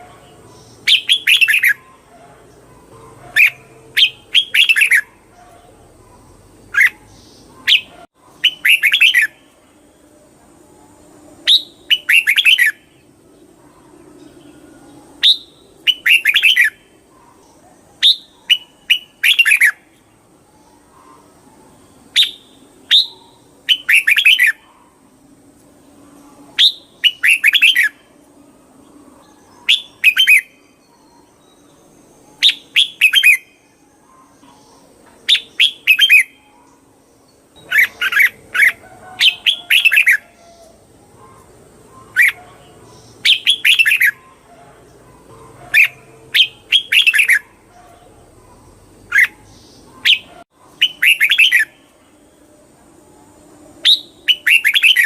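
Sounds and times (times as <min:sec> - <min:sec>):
bird whistling song: 0:00.6 - 0:02.1, 0:03.3 - 0:05.2, 0:06.7 - 0:09.6, 0:11.4 - 0:12.9, 0:15.2 - 0:16.9, 0:18.0 - 0:19.9, 0:22.1 - 0:24.8, 0:26.6 - 0:28.1, 0:29.2 - 0:36.8, 0:37.6 - 0:44.4, 0:45.7 - 0:47.9, 0:49.1 - 0:51.9, 0:53.8 - 0:55.0.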